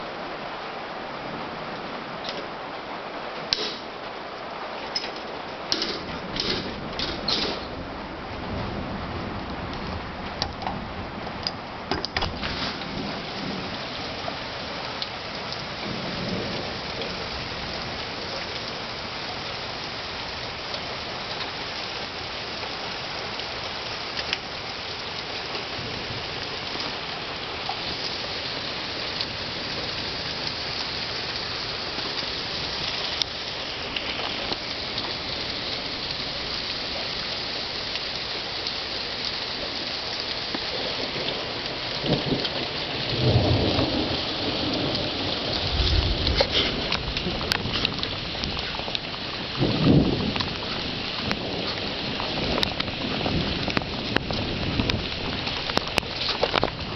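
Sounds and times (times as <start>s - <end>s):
heavy rain and hail pelting: 0.0s - 56.9s
sharp ticks of hail hits: 3.4s - 3.9s, 29.2s - 56.9s
low rumble of thunder: 5.6s - 20.7s, 40.6s - 56.9s.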